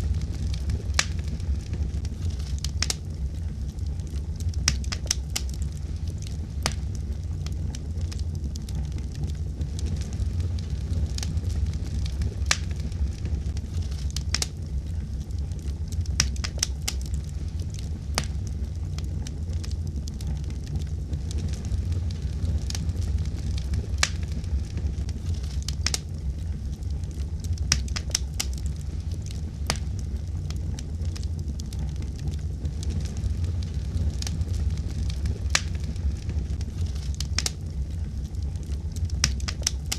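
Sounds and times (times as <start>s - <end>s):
fire crackling and popping: 0.0s - 39.9s
low rumble of fire: 0.0s - 39.9s.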